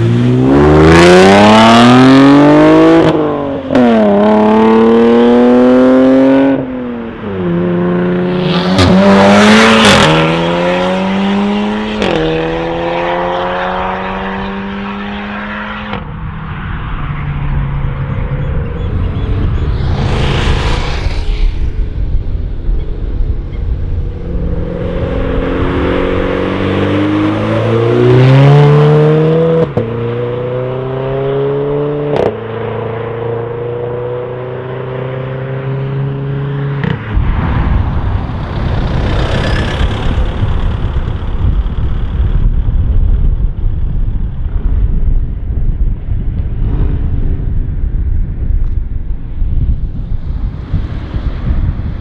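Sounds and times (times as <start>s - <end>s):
car engine accelerating: 0.0s - 16.1s, 16.9s - 43.6s
wind and road noise: 0.0s - 52.0s
sharp crack of upshifts: 19.3s - 28.6s.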